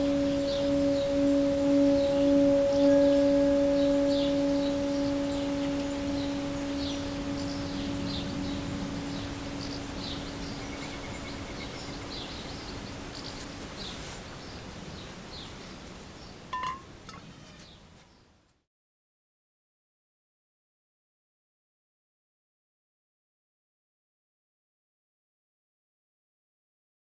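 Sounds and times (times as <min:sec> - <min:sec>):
singing bowl ringing: 0:00.0 - 0:13.2, 0:16.6 - 0:16.9
small birds chirping: 0:00.0 - 0:18.3.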